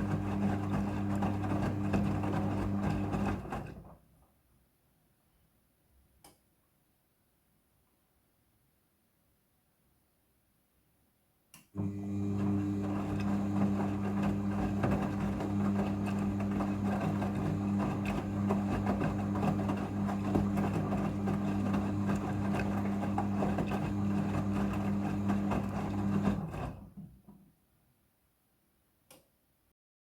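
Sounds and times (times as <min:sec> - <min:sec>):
washing machine motor hum: 0:00.0 - 0:03.9, 0:11.8 - 0:27.2.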